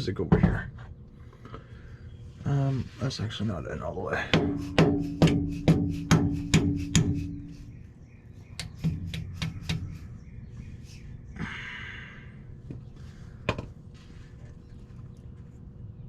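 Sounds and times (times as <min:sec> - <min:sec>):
hammer tapping with rattle: 0:04.3 - 0:07.6, 0:08.6 - 0:10.0.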